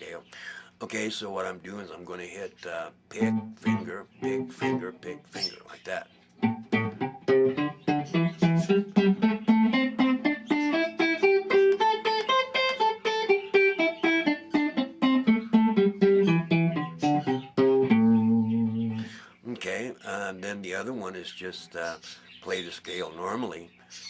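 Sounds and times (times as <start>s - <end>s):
guitar playing a scale: 3.2s - 5.6s, 6.4s - 19.2s.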